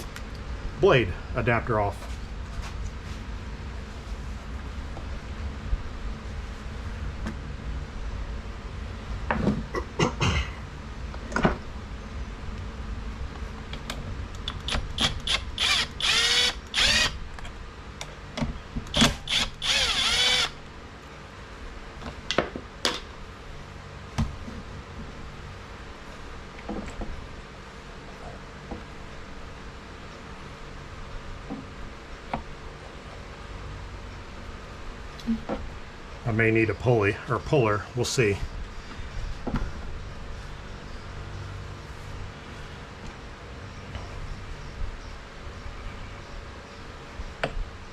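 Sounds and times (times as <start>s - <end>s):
power drill spinning out bolts: 14.4s - 17.2s, 18.9s - 20.6s.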